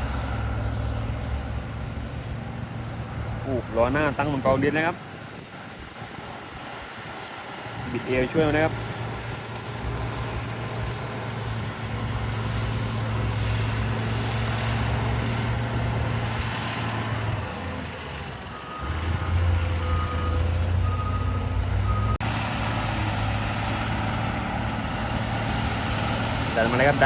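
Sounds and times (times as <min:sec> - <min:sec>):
diesel engine running: 0:00.0 - 0:27.0
reversing alarm beeping: 0:18.5 - 0:22.2.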